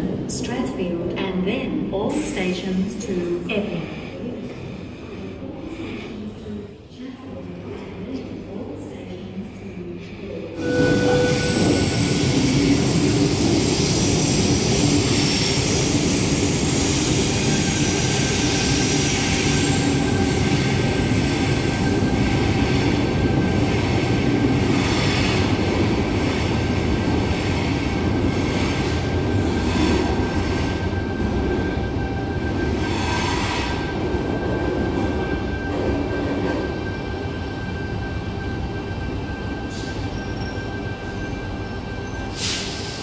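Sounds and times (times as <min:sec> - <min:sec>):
electric train rumbling: 0:10.5 - 0:43.0.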